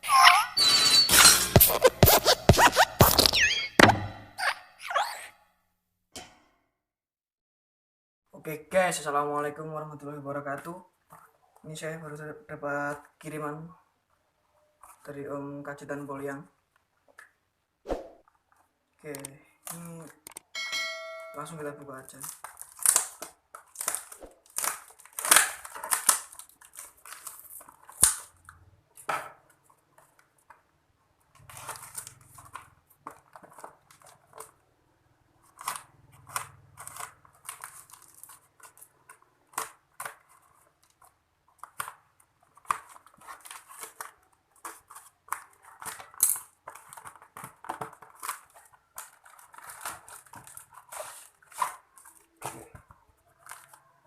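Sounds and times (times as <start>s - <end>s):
packaging crinkling and tearing: 22.1s - 28.6s, 31.3s - 34.6s, 35.4s - 52.5s, 53.2s - 54.0s.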